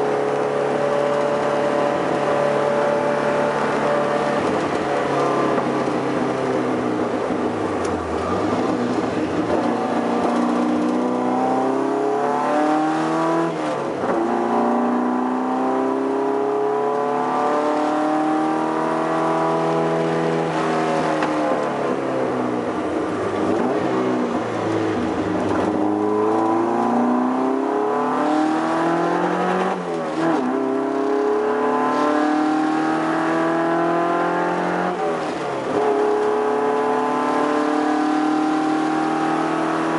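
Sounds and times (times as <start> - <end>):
race car engine revving: 7.0 - 21.8, 22.8 - 39.9.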